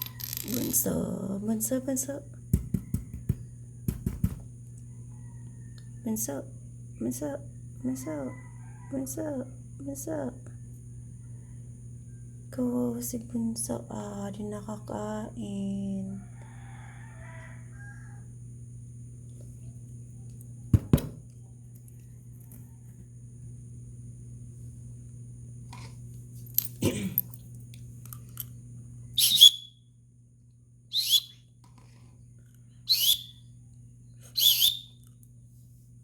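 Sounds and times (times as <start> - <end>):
steady low hum: 0.0 - 16.6, 17.4 - 36.0
knocks: 2.5 - 4.4
chick shrill calls: 29.2 - 29.8, 30.9 - 31.4, 32.9 - 33.4, 34.4 - 35.0.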